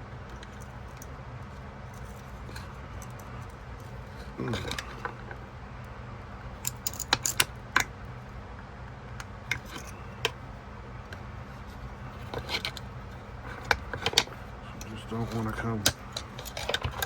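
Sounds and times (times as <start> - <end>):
metal tool prying knife handle: 15.3 - 17.0.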